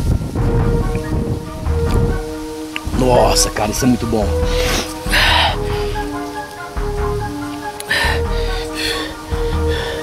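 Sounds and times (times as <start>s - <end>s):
low microphone rumble: 0.0s - 2.4s.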